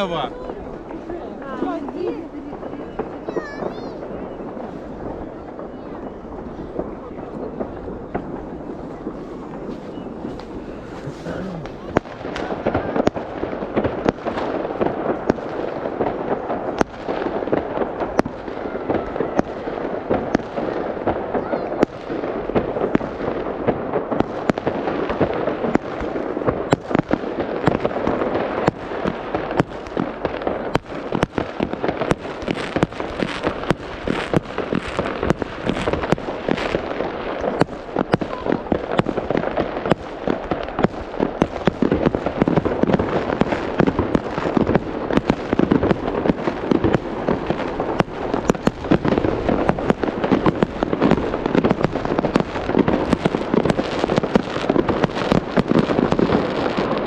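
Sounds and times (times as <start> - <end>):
fireworks crackling and popping: 0.0 - 57.0.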